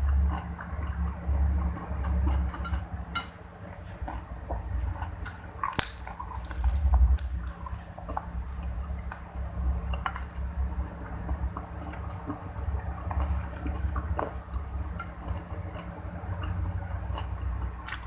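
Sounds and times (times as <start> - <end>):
person chewing food: 0.0 - 9.3, 11.6 - 18.0
crisp crunches and clicks: 4.8 - 9.2.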